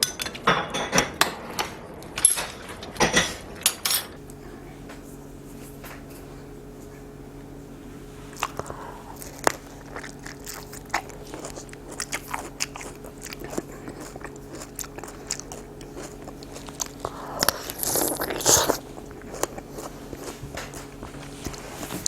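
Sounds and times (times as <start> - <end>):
steady low hum: 0.0 - 22.0
person crunching and chewing: 8.2 - 22.0.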